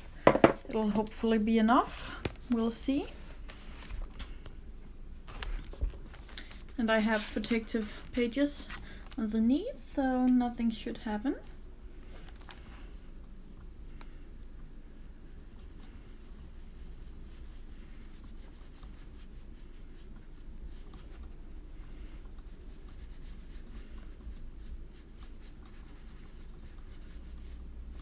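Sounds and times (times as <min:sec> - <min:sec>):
paintbrush strokes on paper: 0:06.5 - 0:08.4, 0:15.0 - 0:28.0.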